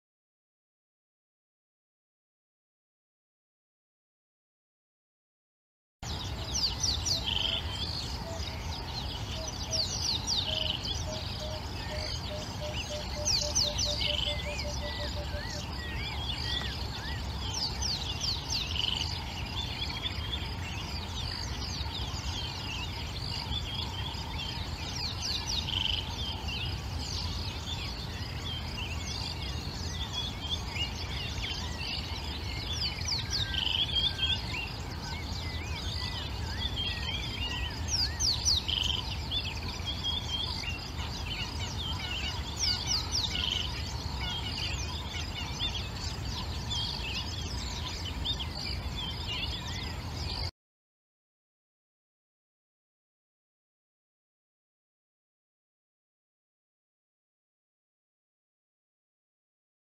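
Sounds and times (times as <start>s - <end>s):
birds chirping and calling: 6.0s - 50.5s.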